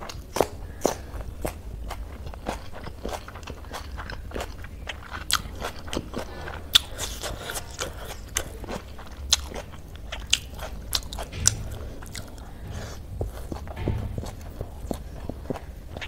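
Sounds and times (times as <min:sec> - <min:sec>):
chewing noodles: 0:00.0 - 0:11.4.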